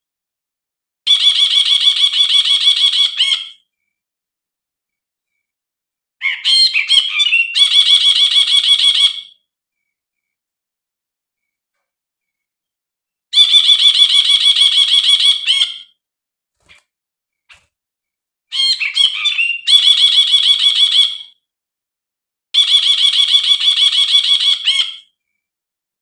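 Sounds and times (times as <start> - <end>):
bird song rapid repeated notes: 6.3 - 9.4, 13.4 - 16.0, 18.5 - 21.2.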